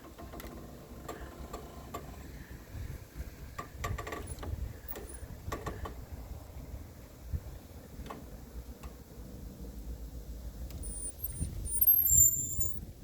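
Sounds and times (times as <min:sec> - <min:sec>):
wind on microphone: 0:02.5 - 0:07.9, 0:10.8 - 0:13.0.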